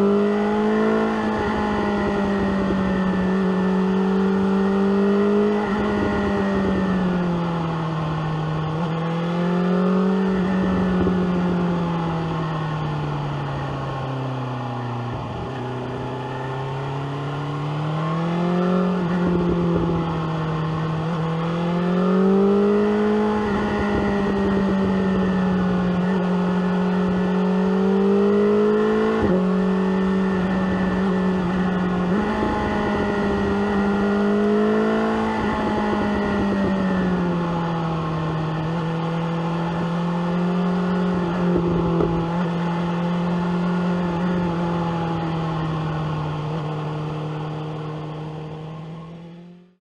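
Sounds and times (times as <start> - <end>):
wind noise: 0.0 - 7.9, 8.6 - 14.0, 18.4 - 42.8
motorcycle engine: 0.0 - 49.8.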